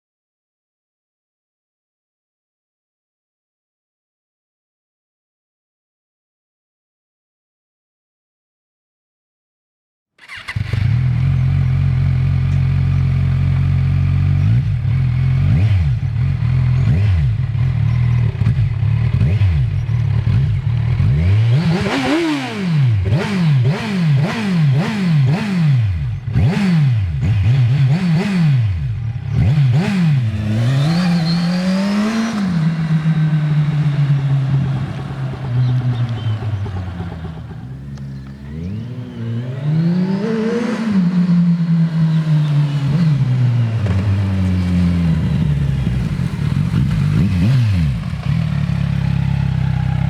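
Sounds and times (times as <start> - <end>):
motorcycle engine idling and revving: 10.2 - 50.0.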